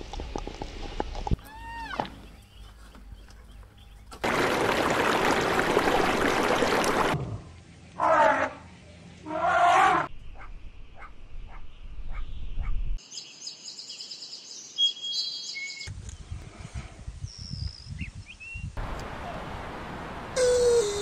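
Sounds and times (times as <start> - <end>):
whistled bird notes: 12.2 - 15.9
loud animal call: 20.4 - 21.0.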